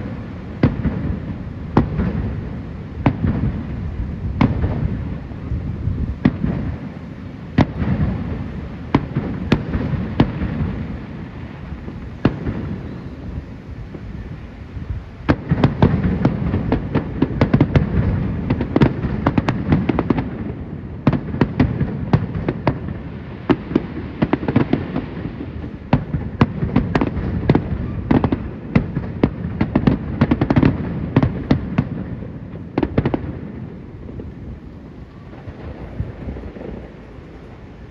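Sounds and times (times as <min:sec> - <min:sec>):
continuous low rumble: 0:25.1 - 0:37.9.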